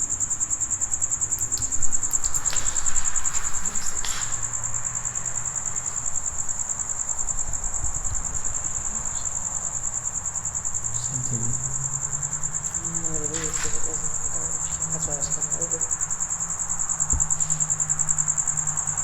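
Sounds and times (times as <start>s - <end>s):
crickets chirping: 0.0s - 19.0s
rustling knocks: 1.4s - 6.7s.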